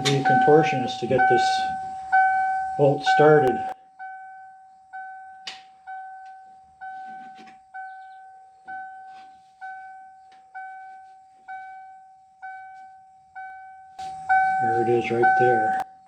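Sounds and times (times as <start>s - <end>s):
truck warning chime dinging: 0.0s - 16.0s.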